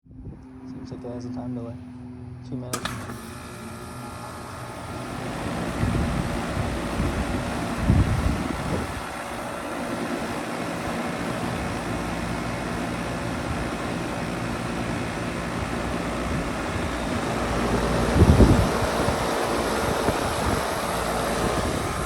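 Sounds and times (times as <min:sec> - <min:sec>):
heat pump humming: 0:00.2 - 0:22.0
low rumbling thumps: 0:16.2 - 0:22.0.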